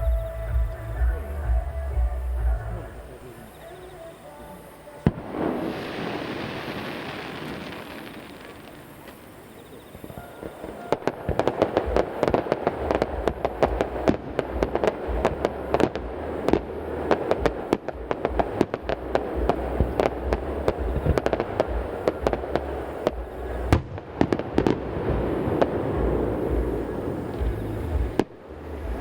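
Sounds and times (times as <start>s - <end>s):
low rumble: 0.0s - 3.2s, 11.7s - 29.0s
firework bangs: 0.0s - 29.0s
hissing crackle: 0.0s - 29.0s.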